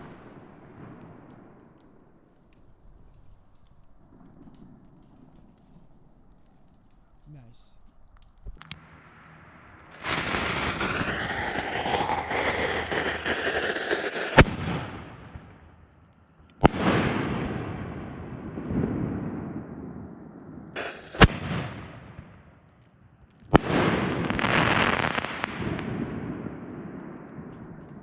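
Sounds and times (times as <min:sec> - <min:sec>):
firework shells exploding: 0:00.0 - 0:05.4, 0:08.4 - 0:16.0, 0:20.8 - 0:22.7, 0:23.4 - 0:28.0
firework crackling: 0:00.0 - 0:16.0, 0:20.8 - 0:22.8, 0:23.4 - 0:28.0
rumbling echo: 0:08.5 - 0:22.5.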